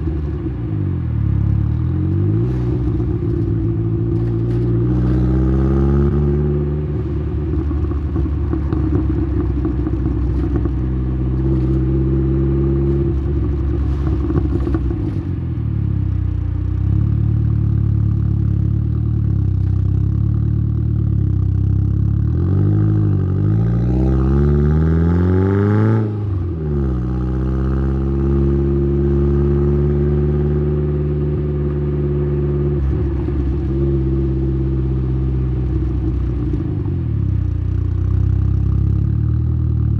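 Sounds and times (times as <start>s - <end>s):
car exhaust engine revving: 1.2s - 15.4s.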